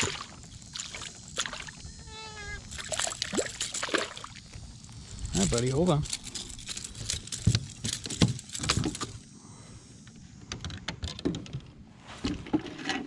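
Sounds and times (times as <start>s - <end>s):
clicks knocks and rattles: 6.0s - 9.2s.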